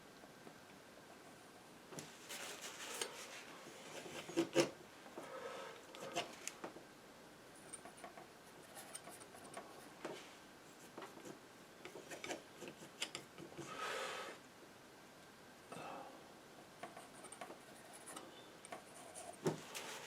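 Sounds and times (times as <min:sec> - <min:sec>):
painting knife scraping canvas: 0:02.2 - 0:06.5.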